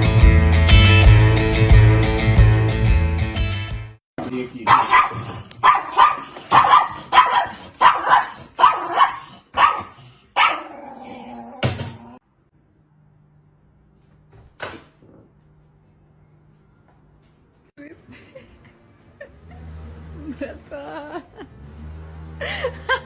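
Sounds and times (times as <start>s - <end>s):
dog barking: 4.7s - 11.0s.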